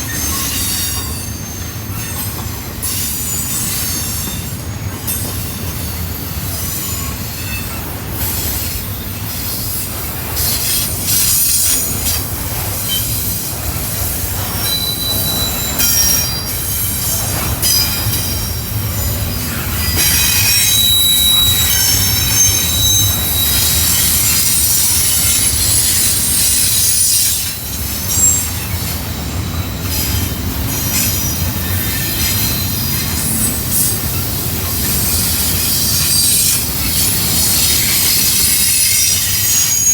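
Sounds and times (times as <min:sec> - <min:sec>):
freight cars rolling rumble: 0:04.3 - 0:39.4
high-pitched wheel squeal: 0:14.6 - 0:33.6, 0:34.9 - 0:39.9.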